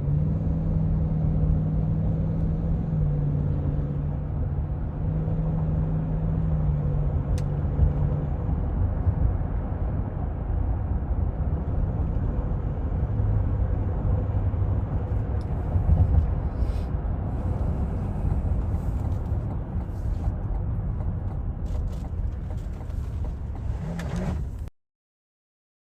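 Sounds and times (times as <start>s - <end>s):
car road and engine noise: 0.0s - 24.7s
low engine drone: 6.9s - 21.2s.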